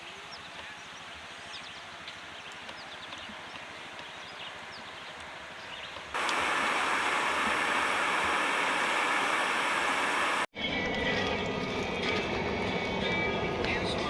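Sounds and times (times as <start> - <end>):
river water flowing: 6.2 - 10.5.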